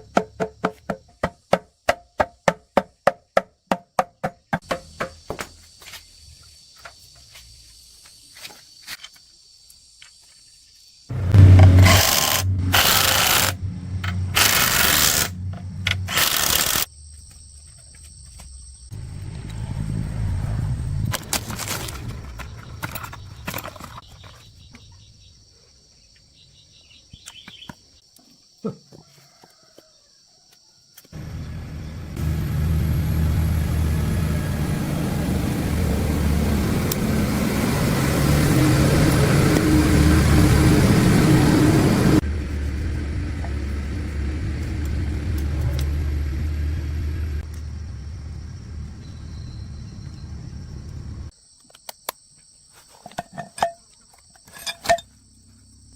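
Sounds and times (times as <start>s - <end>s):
diesel engine running: 11.1s - 16.9s, 19.0s - 23.5s, 31.2s - 51.3s.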